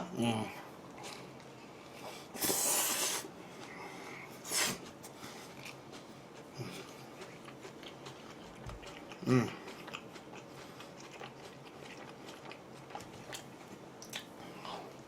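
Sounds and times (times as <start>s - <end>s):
person chewing food: 0.9s - 15.0s
noisy breath through nose: 1.6s - 5.6s.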